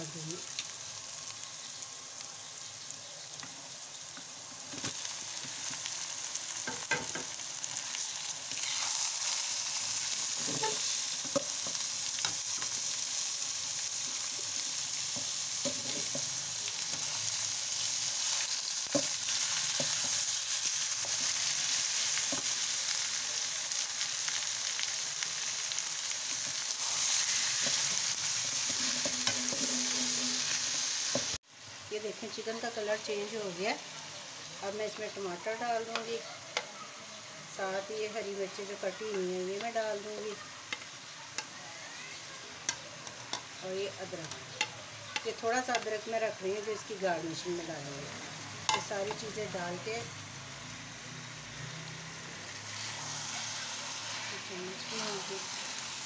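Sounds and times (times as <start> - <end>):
chicken and onions sizzling in oil: 0.0 - 56.0
wooden spatula scraping pan: 26.4 - 31.3.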